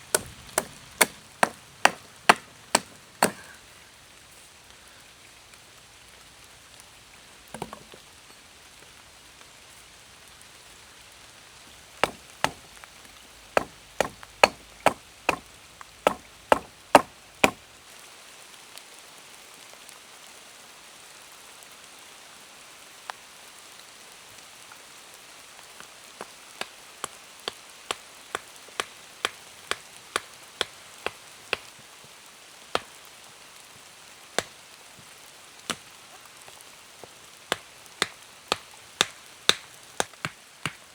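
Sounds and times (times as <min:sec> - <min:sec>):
rain patter: 0:00.0 - 0:40.9
chopping strikes on wood: 0:00.1 - 0:03.6, 0:07.5 - 0:07.9, 0:12.0 - 0:17.6, 0:26.6 - 0:31.7, 0:32.8 - 0:33.0, 0:37.5 - 0:40.8.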